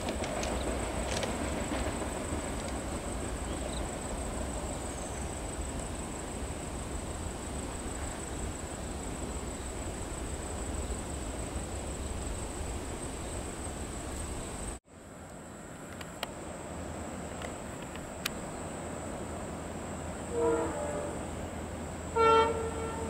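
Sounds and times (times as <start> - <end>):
train rumbling away: 0.0 - 23.0.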